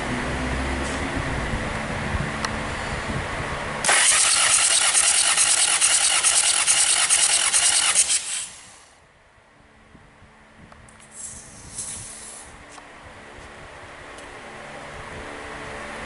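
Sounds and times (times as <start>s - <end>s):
diesel engine cranking hiss: 3.8s - 9.0s, 11.0s - 12.6s.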